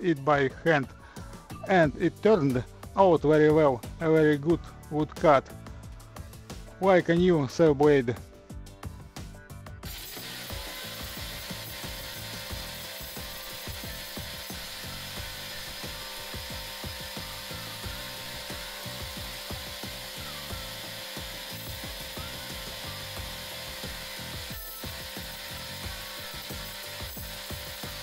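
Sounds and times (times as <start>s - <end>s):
power tool grinding: 9.8s - 28.0s.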